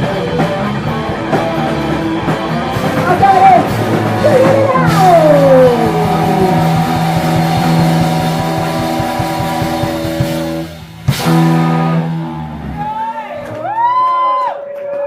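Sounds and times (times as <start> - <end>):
rapid drum hits: 0.0 - 12.9
amplified guitar chord: 3.6 - 12.6.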